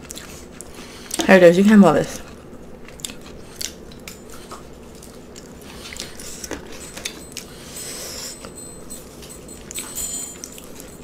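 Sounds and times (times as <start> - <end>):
food crunching while chewed: 0.0 - 1.3, 2.1 - 7.6.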